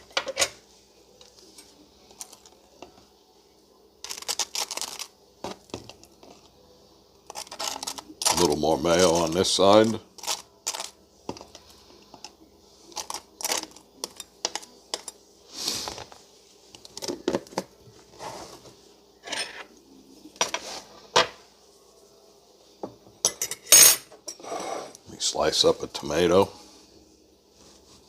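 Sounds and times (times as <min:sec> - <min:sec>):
kitchen utensils clinking: 0:00.0 - 0:00.6, 0:19.2 - 0:19.7, 0:23.2 - 0:25.0.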